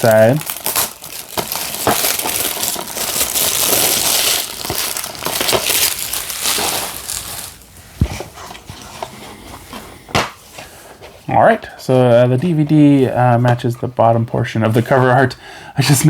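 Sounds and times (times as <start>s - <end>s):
plastic wrap crinkling: 0.0s - 9.8s.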